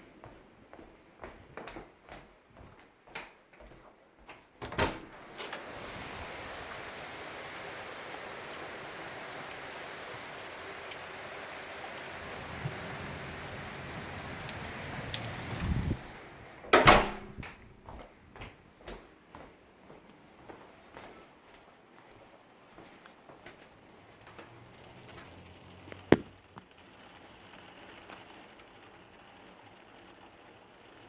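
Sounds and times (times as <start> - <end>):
steady rain: 5.1 - 16.8, 21.5 - 31.0.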